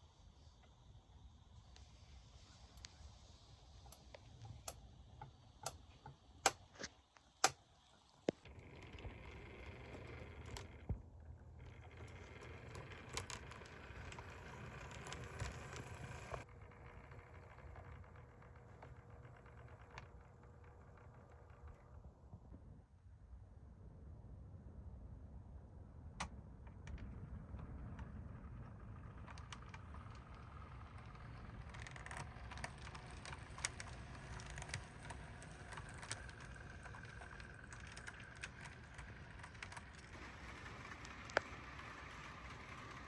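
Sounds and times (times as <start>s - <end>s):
sharp irregular clicks: 8.3s - 21.8s, 27.8s - 43.0s
model train running: 8.5s - 21.9s, 27.0s - 43.0s.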